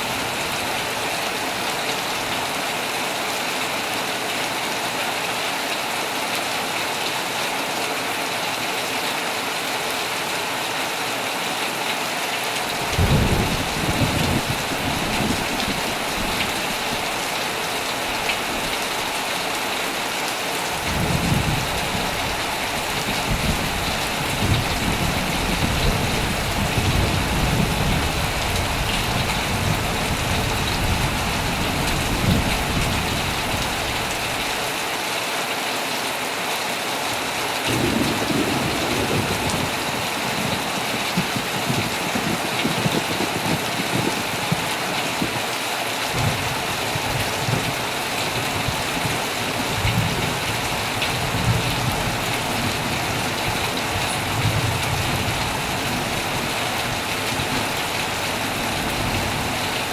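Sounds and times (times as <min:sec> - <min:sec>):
heavy rain on a tent: 0:00.0 - 0:59.9
rolling thunder: 0:12.8 - 0:17.3, 0:20.8 - 0:34.1, 0:37.7 - 0:45.4.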